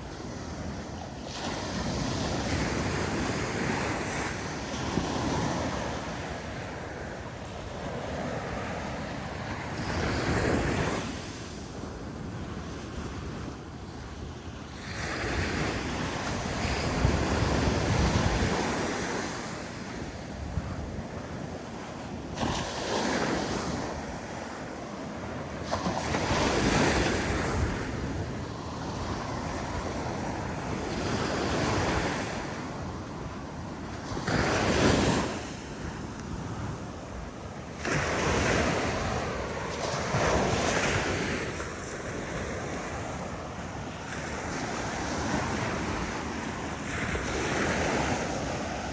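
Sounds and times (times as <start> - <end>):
wind buffeting microphone: 0.0 - 48.9
ocean surf breaking: 21.1 - 48.9.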